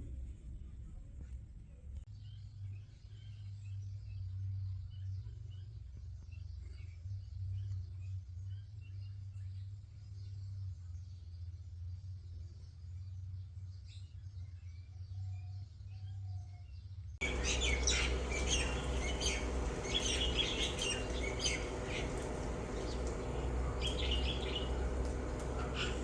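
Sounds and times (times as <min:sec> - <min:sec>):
low hum: 0:17.2 - 0:26.0
parakeets chirping and squawking: 0:17.2 - 0:26.0.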